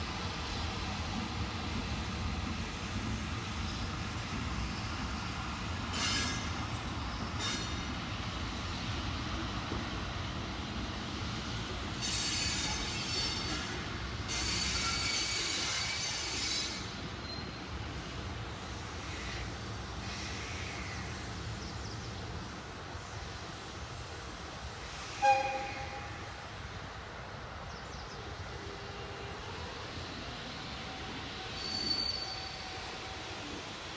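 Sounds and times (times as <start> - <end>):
train rumbling on rails: 0.0 - 33.9
train wheels squealing: 0.4 - 22.1, 24.9 - 26.4, 27.9 - 33.8.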